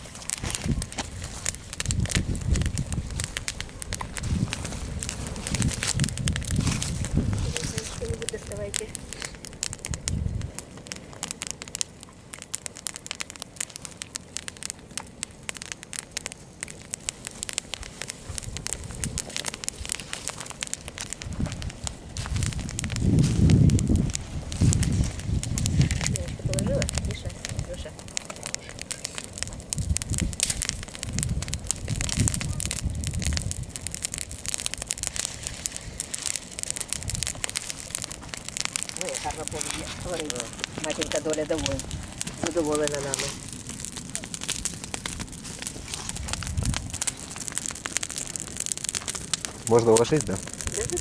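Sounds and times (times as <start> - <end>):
bonfire crackling and popping: 0.0 - 51.0.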